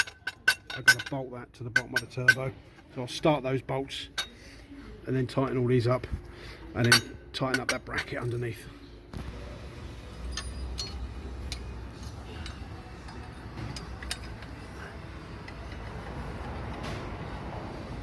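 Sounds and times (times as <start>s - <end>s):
steady low hum: 4.1s - 18.0s
metallic clicks of hand tools: 10.3s - 14.7s.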